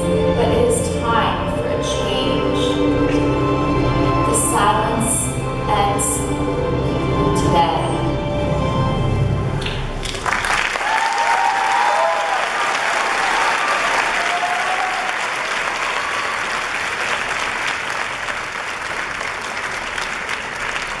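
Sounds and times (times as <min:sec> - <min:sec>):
audience applauding: 0:09.6 - 0:21.0
voices cheering: 0:10.7 - 0:18.0.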